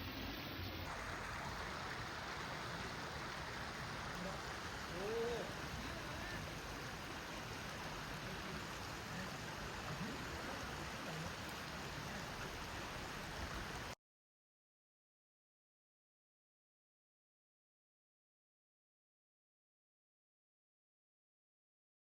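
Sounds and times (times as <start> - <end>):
stream water flowing: 0.0 - 14.0.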